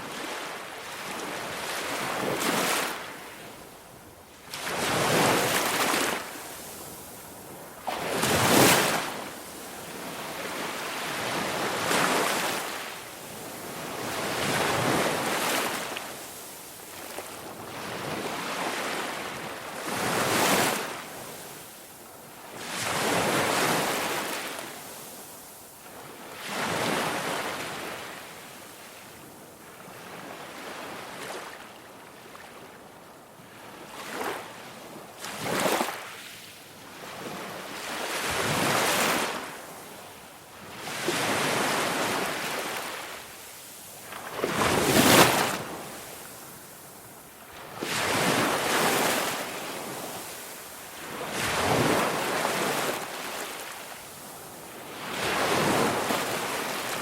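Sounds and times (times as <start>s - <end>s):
ocean waves washing ashore: 0.0s - 29.0s, 37.1s - 57.0s.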